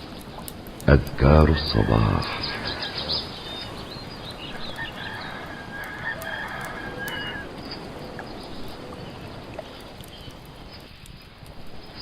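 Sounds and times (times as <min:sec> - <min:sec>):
steady hiss: 0:00.0 - 0:05.0
fire crackling: 0:00.0 - 0:12.0
rooster crowing: 0:04.6 - 0:07.6.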